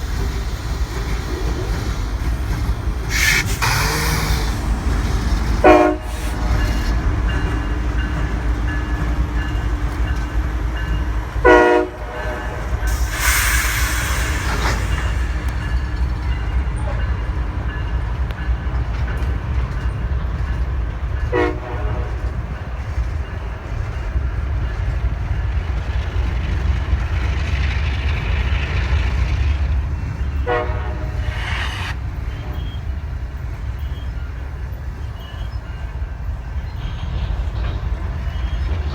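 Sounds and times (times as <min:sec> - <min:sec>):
burst of hiss: 0:00.0 - 0:05.0, 0:05.9 - 0:06.7, 0:12.9 - 0:15.7, 0:30.6 - 0:32.8
locomotive engine rumble: 0:00.0 - 0:21.2, 0:22.1 - 0:38.9
locomotive horn blasts: 0:05.6 - 0:06.8, 0:11.4 - 0:13.1, 0:21.3 - 0:22.2, 0:30.4 - 0:32.8.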